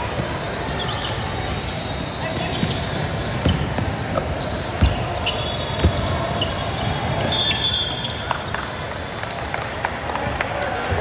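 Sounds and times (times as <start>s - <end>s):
gym hall noise: 0.0s - 11.0s
basketball bouncing on a court: 2.5s - 6.6s.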